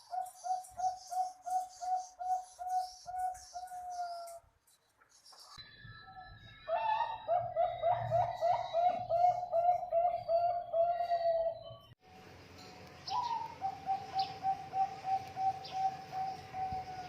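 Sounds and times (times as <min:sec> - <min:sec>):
dove cooing: 0:06.7 - 0:11.7, 0:13.1 - 0:17.0.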